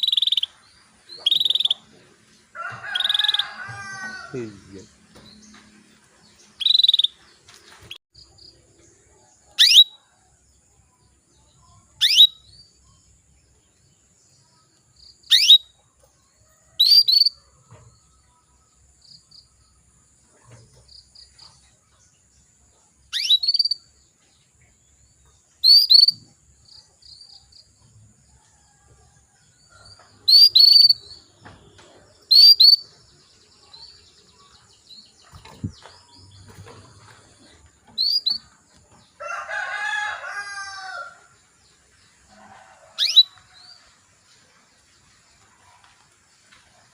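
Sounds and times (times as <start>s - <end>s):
canary call notes: 1.2s - 1.9s, 15.3s - 15.6s, 43.0s - 43.4s.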